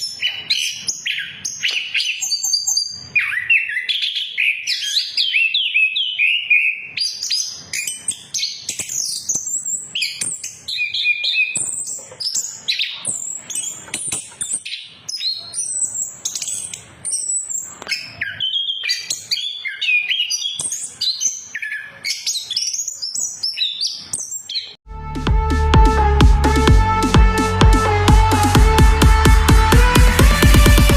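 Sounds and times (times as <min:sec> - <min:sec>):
thrush singing: 0:24.9 - 0:30.9.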